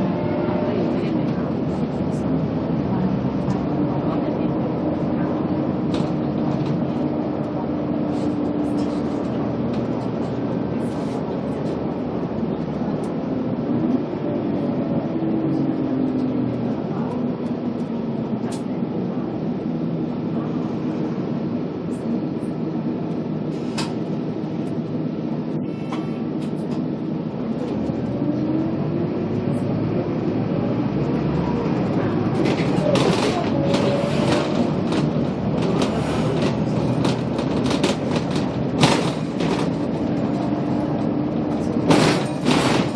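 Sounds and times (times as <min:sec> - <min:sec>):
bus engine and road noise: 0:00.0 - 0:42.9.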